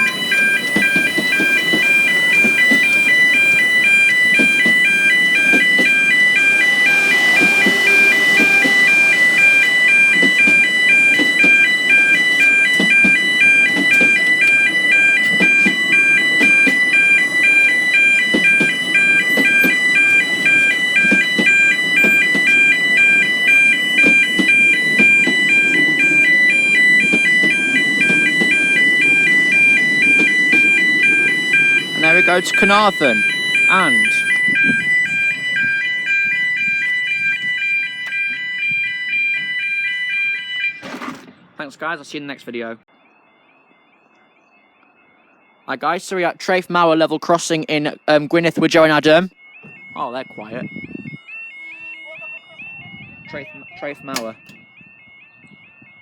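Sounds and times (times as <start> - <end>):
train rumbling over crossing: 0.0 - 41.6
level crossing warning alarm: 0.0 - 56.0.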